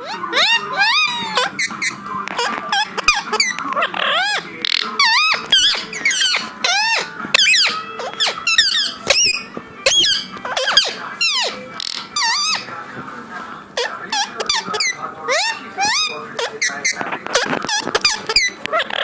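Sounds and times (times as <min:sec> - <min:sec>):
parrot squawking: 0:00.0 - 0:12.7, 0:13.8 - 0:19.0.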